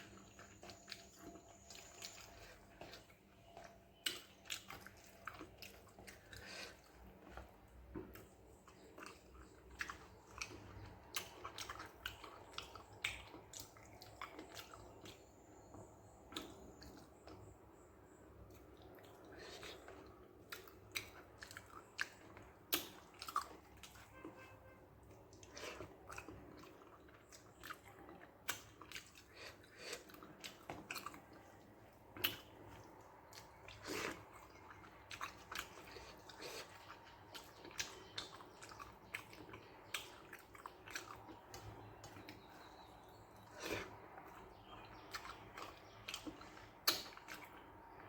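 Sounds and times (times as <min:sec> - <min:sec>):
person chewing food: 0:00.0 - 0:48.0
mouth smacks and clicks: 0:45.1 - 0:47.6.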